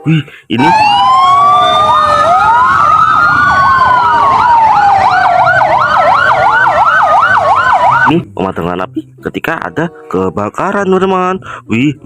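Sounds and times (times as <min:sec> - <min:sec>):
fast yelping siren: 0:00.6 - 0:08.1
fire engine sirens wailing: 0:00.6 - 0:08.1.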